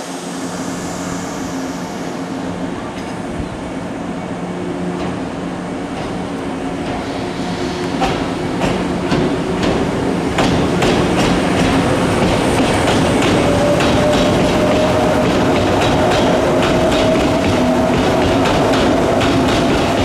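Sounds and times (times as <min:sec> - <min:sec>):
train motor hum and whine: 0:00.0 - 0:20.0
train wheels clacking on rails: 0:05.9 - 0:20.0.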